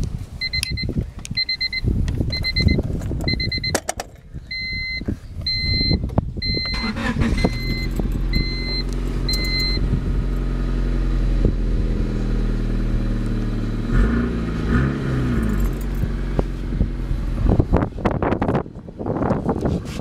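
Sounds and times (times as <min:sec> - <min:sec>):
dashboard warning chime beeps: 0:00.4 - 0:03.9, 0:04.5 - 0:09.8
car engine idling: 0:05.6 - 0:14.7, 0:15.3 - 0:19.1.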